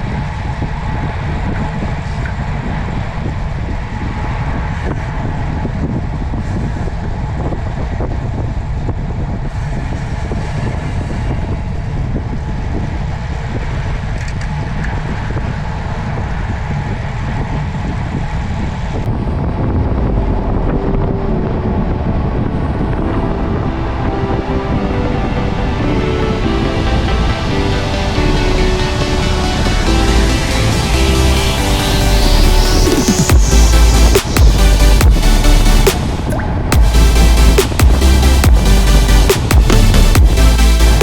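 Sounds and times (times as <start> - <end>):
vehicle noise: 0.0 - 41.0
wind rushing over microphone: 0.0 - 41.0
background music: 19.5 - 41.0.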